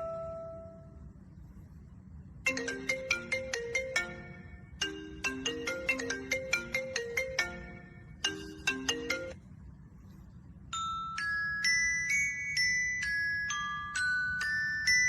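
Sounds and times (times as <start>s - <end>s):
marimba ringtone melody: 0.0s - 0.8s, 2.5s - 9.4s, 10.8s - 15.0s
high chime tones: 0.0s - 1.0s, 2.5s - 9.4s, 10.8s - 15.0s.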